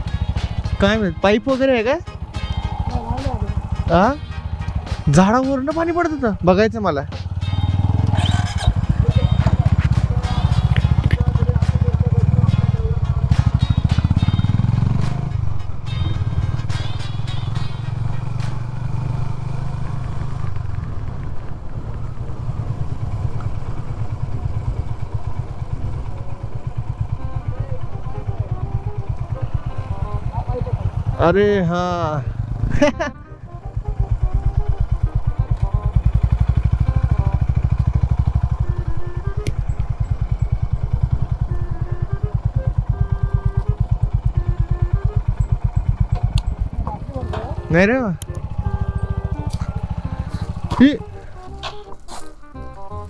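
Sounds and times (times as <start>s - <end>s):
motorcycle engine running low revs: 0.0s - 53.0s.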